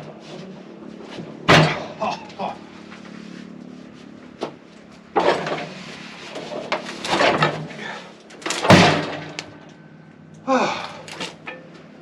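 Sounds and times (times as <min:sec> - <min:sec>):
steady low hum: 0:00.0 - 0:12.0
log scraping on sawmill bed: 0:05.2 - 0:08.0.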